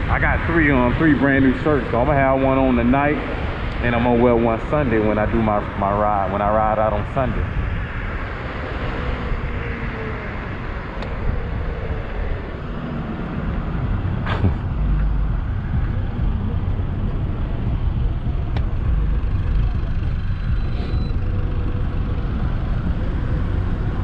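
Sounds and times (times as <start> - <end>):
rumbling road and traffic noise: 0.0 - 24.0
faint gliding tone: 8.5 - 24.0.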